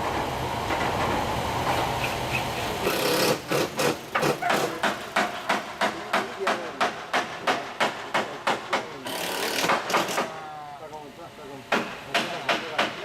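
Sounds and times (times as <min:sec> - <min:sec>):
steady mechanical rumble: 0:00.0 - 0:05.9
hammer blows on wood: 0:02.0 - 0:10.3.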